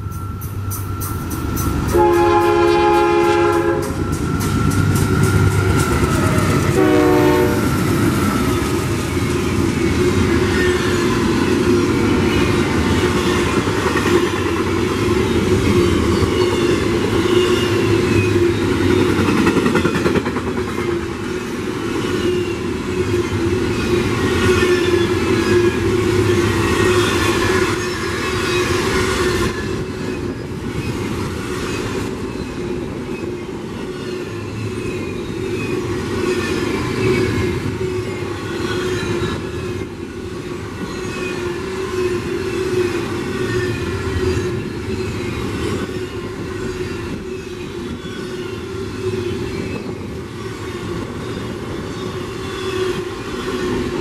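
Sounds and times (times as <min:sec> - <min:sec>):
train rumbling past: 0:00.0 - 0:54.0
locomotive horn blasts: 0:01.9 - 0:04.0, 0:06.7 - 0:07.8.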